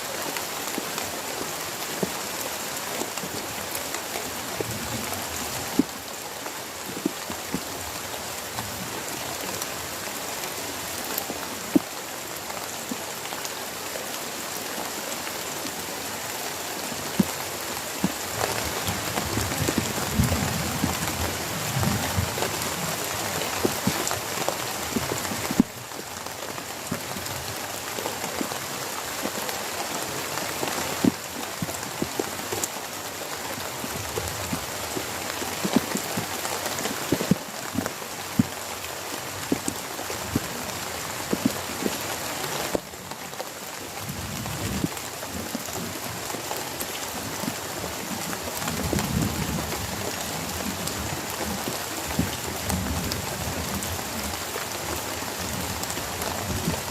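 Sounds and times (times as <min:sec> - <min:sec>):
heavy rain falling: 0:00.0 - 0:56.9
large raindrops tapping close by: 0:00.0 - 0:56.9.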